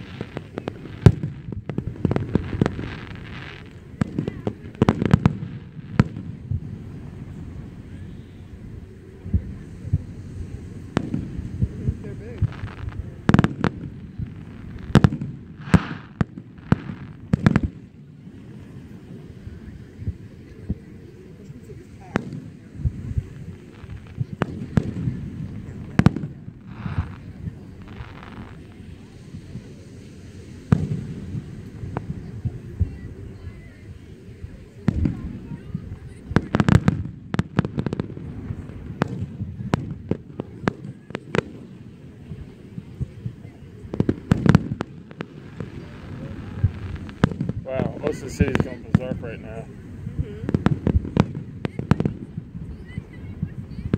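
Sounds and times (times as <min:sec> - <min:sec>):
fireworks hissing: 0:00.0 - 0:53.9
firework shells bursting: 0:10.9 - 0:17.9.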